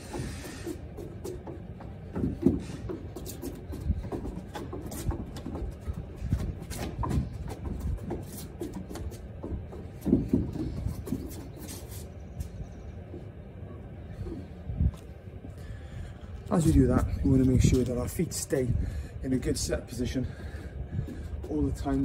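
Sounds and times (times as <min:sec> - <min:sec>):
trainers scuffing on wooden decking: 0:00.0 - 0:15.2, 0:19.5 - 0:22.0.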